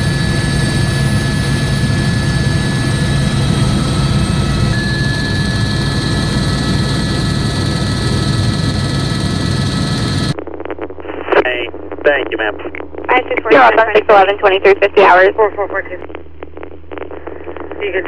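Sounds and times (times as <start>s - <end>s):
helicopter engine and rotor drone: 0.0s - 10.4s
thin high tone: 4.4s - 7.6s.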